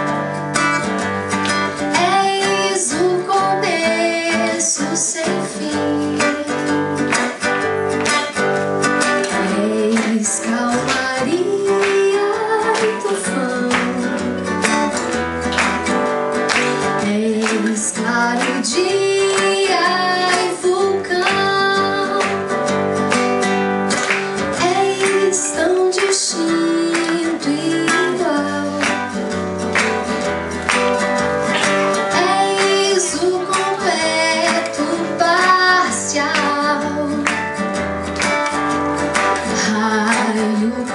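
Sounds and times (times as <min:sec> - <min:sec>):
strummed acoustic guitar: 0:00.0 - 0:40.9
woman singing: 0:01.8 - 0:07.4, 0:09.2 - 0:14.5, 0:16.8 - 0:22.6, 0:24.4 - 0:29.4, 0:31.6 - 0:37.4, 0:39.4 - 0:40.9.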